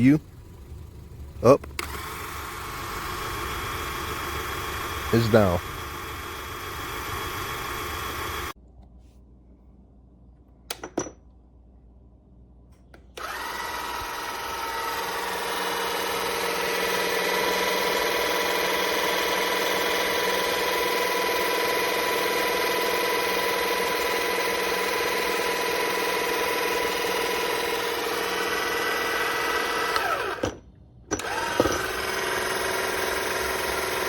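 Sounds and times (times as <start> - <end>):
steady running noise: 0.0 - 8.5, 13.2 - 30.4
electric car jack motor whining: 1.6 - 8.6, 13.2 - 34.0.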